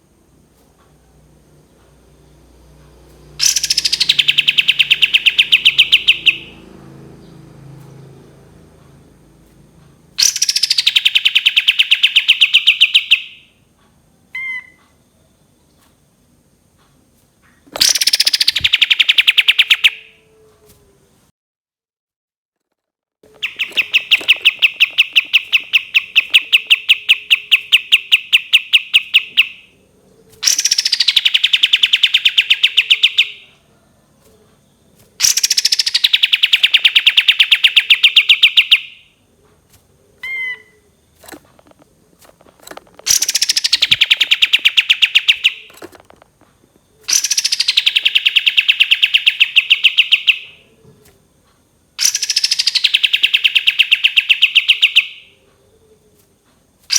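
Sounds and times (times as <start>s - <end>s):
songbird singing rapid trills: 3.4s - 7.4s, 10.2s - 13.5s, 17.8s - 20.1s, 23.4s - 33.6s, 34.5s - 39.1s, 40.1s - 45.8s, 46.8s - 50.7s, 52.0s - 55.4s.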